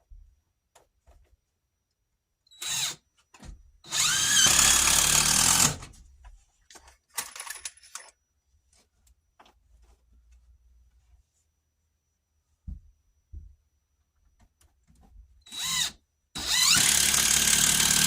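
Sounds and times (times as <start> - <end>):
power drill driving screws: 2.5 - 3.0, 3.9 - 5.9, 15.4 - 18.0.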